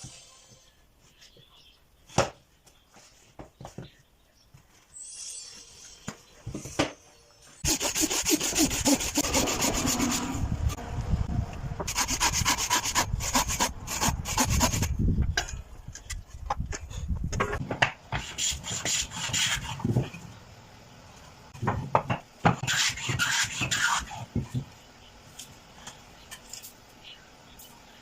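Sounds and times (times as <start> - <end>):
hand tool scraping wood: 7.6 - 10.4.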